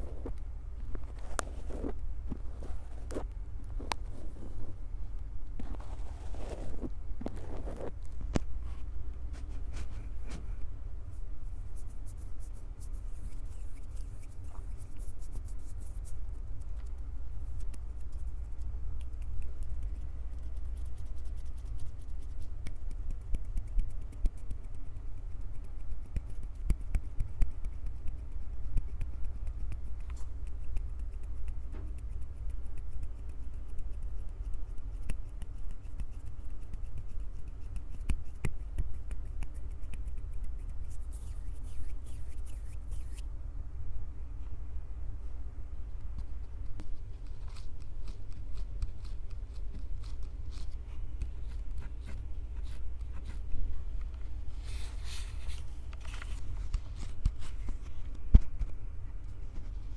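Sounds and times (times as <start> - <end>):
hands rubbing recorder microphones: 5.6 - 8.0, 11.2 - 43.3, 46.0 - 58.8.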